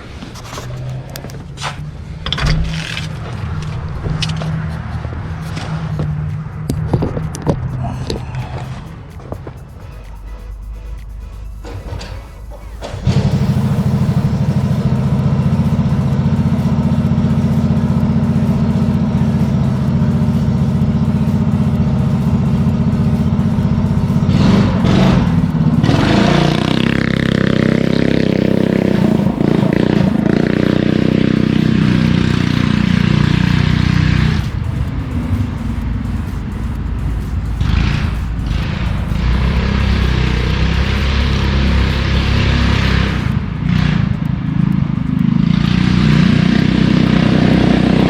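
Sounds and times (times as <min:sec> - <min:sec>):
small gas engine revving: 0:12.4 - 0:48.0.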